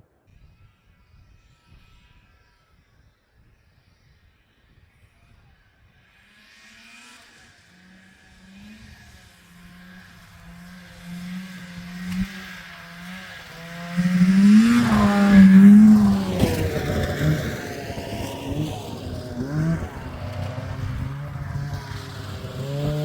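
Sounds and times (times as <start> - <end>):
snowmobile engine running: 6.4 - 23.0.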